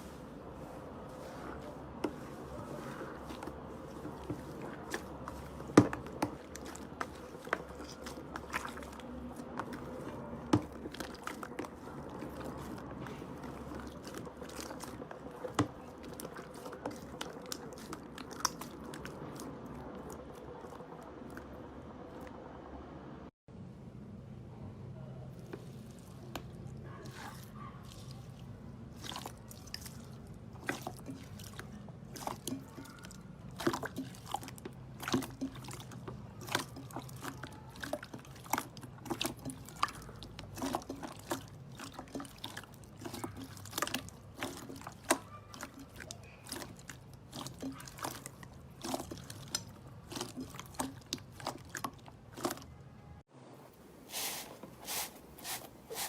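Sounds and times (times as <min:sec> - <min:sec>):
slime squishing by hand: 0:00.0 - 0:21.5, 0:25.3 - 0:53.0, 0:53.8 - 0:56.0.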